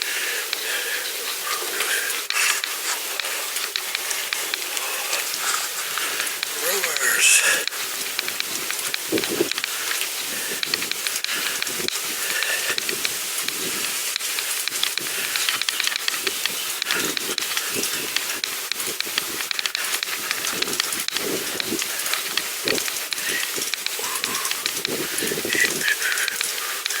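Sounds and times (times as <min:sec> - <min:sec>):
bicycle tyres on rough path: 0:07.8 - 0:27.0.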